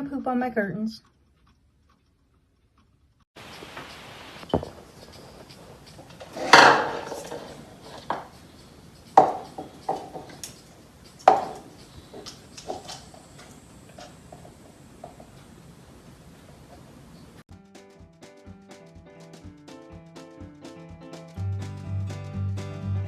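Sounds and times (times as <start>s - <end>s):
hard objects clattering: 3.8s - 15.4s.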